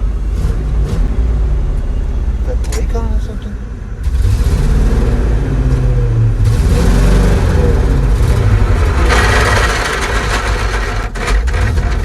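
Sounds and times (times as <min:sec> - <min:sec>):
truck engine under load: 0:04.0 - 0:12.0
harsh gear grinding: 0:06.4 - 0:12.0.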